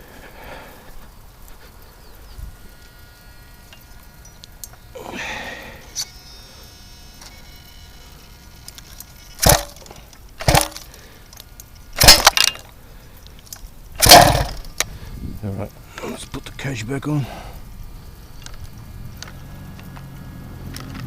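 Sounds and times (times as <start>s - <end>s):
tools clacking and knocking: 12.0s - 12.7s.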